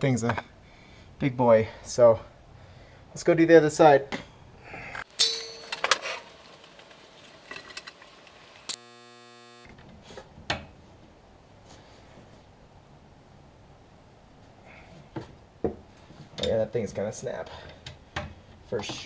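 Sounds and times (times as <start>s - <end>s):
metal hand tools clinking: 5.0s - 8.8s.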